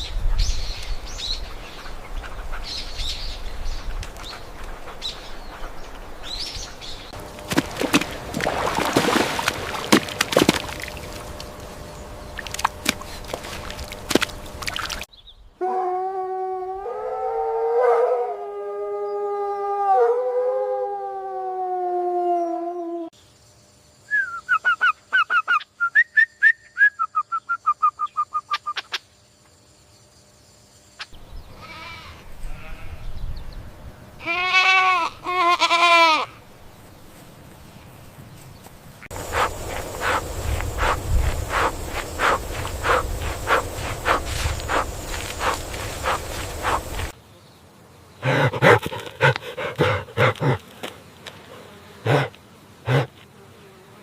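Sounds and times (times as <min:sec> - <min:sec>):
outdoor noise: 0:00.0 - 0:54.0
sheep bleating: 0:31.6 - 0:33.0, 0:34.2 - 0:36.4.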